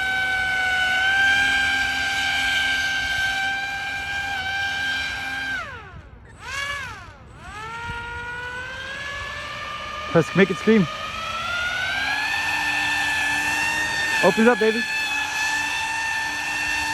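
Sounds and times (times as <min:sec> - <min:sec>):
electric motor and propeller whining: 0:00.0 - 0:16.9.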